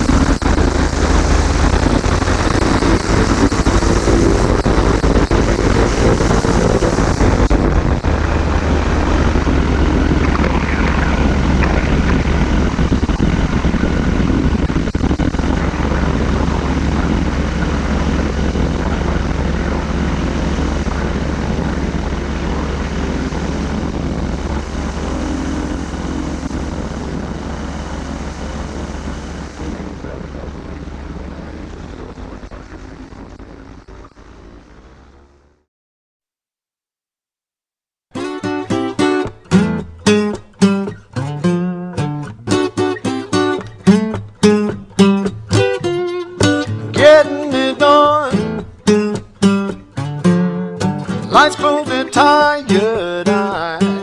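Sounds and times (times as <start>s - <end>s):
microlight engine droning: 0.0s - 35.7s, 42.3s - 54.0s.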